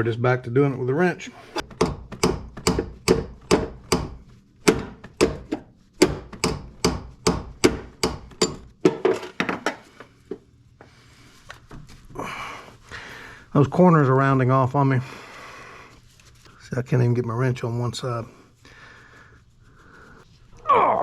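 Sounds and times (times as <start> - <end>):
hammer tapping on a wrench: 1.7 - 8.7.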